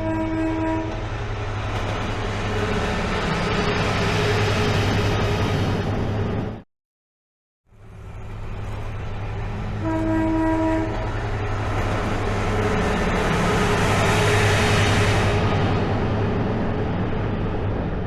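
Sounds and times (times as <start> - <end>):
locomotive horn: 0.0 - 1.0, 9.8 - 11.1
diesel locomotive engine droning: 0.0 - 6.6, 7.7 - 18.0.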